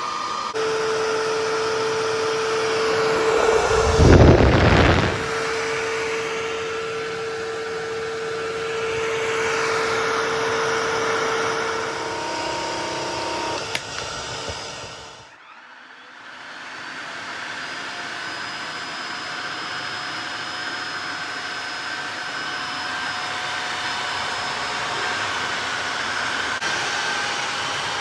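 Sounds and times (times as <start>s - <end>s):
floor cleaner motor whine: 0.0s - 28.0s
loud rush with deep rumble: 2.6s - 6.5s.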